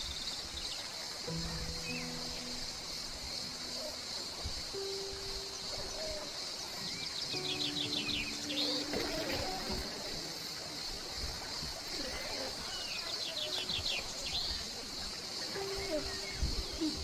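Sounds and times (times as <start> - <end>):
birds chirping: 0.0 - 17.0
steady high-pitched hiss: 0.0 - 17.0
long low music notes: 1.3 - 9.9.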